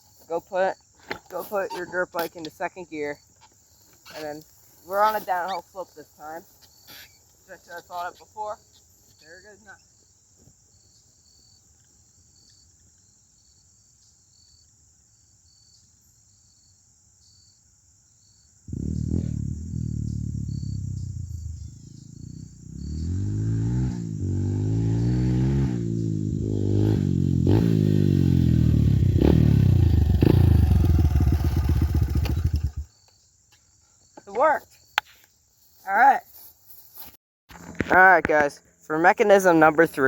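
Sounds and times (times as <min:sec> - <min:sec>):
crickets chirping: 0:00.0 - 0:40.0
dirt bike engine revving: 0:18.7 - 0:32.9.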